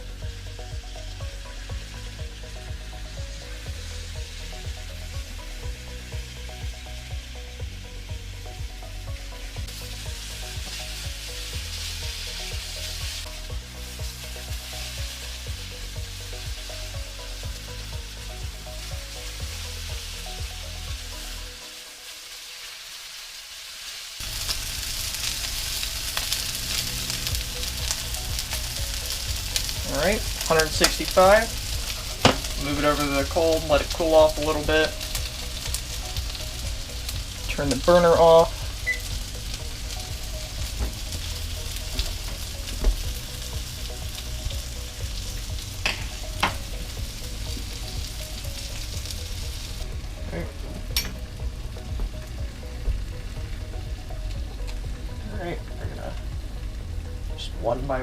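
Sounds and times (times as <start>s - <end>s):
chicken sizzling in a pan: 0.0s - 58.0s.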